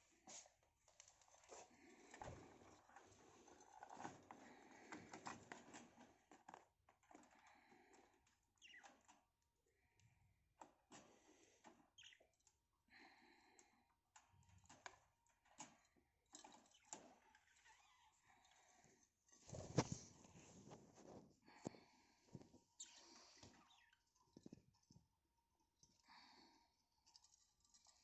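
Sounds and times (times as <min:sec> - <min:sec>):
birds clicking and scratching: 0:00.9 - 0:09.3
soft bird chirps: 0:08.5 - 0:09.2, 0:11.9 - 0:12.5, 0:22.6 - 0:24.9.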